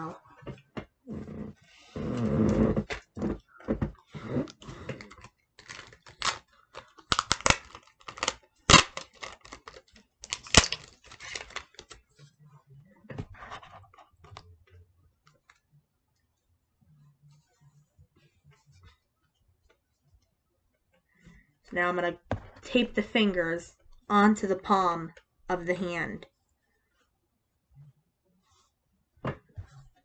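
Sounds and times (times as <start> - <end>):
material crinkling by hand: 5.0 - 12.4.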